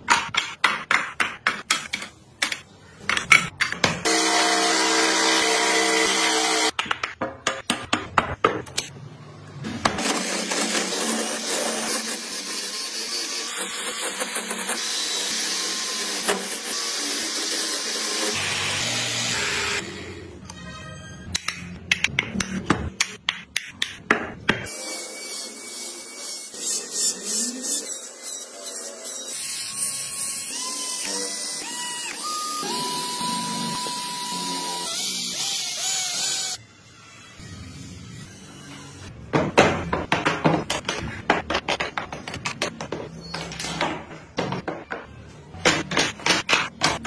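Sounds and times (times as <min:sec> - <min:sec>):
power tool whirring on wood: 0:27.4 - 0:36.6.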